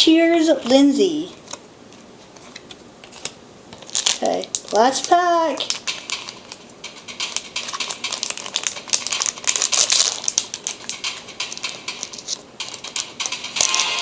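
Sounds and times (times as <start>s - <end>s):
foil wrapper crinkling: 2.5s - 6.6s, 7.2s - 11.2s, 11.9s - 13.9s.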